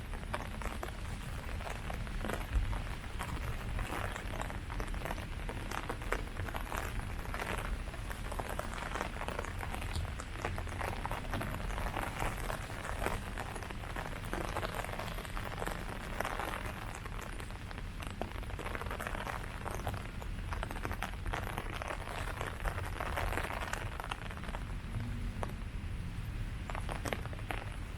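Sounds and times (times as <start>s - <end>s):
rain falling on leaves: 0.0s - 27.9s
low rumble: 24.5s - 26.8s.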